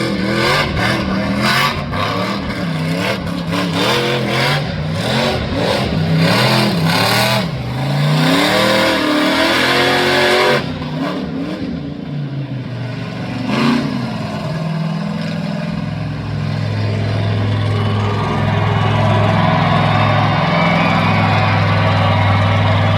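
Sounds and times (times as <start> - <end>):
truck engine revving: 0.0 - 22.9.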